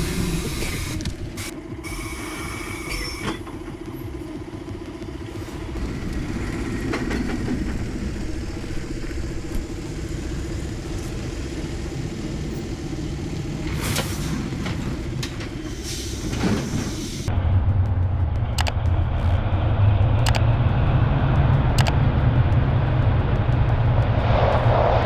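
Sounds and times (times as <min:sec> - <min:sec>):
truck diesel engine rumbling: 0:03.4 - 0:25.0
brief hissing: 0:13.8 - 0:14.5.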